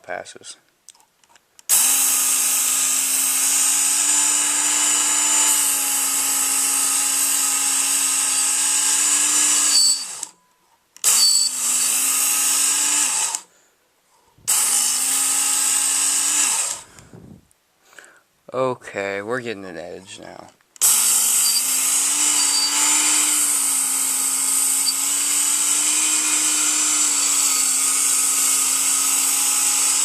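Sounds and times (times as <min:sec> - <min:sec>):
belt knife sharpener grinding: 0:01.7 - 0:10.4, 0:11.0 - 0:13.4, 0:14.5 - 0:16.8, 0:20.8 - 0:30.0.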